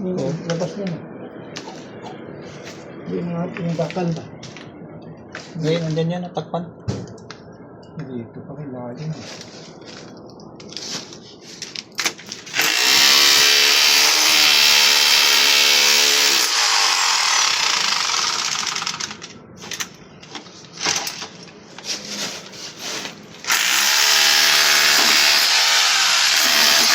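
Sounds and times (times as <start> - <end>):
power tool grinding: 12.5 - 19.2, 23.5 - 26.9.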